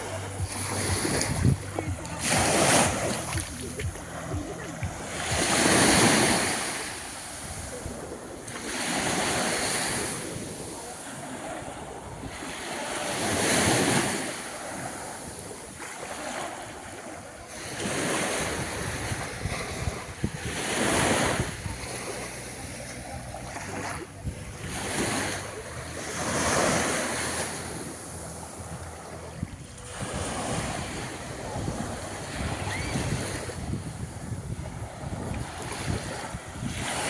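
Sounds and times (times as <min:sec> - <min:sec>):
wind buffeting microphone: 0:00.0 - 0:09.3, 0:18.4 - 0:26.0, 0:28.1 - 0:37.0
small waves breaking on beach: 0:00.0 - 0:37.0.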